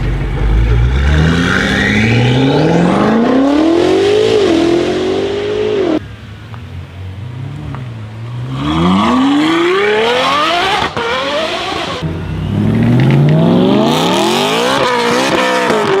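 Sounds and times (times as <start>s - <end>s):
sports car engine accelerating: 0.0s - 6.0s.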